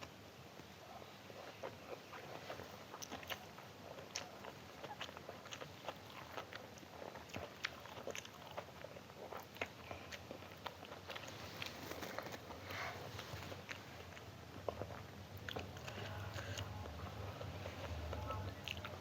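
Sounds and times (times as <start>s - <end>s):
chewing and biting food: 1.2s - 19.0s.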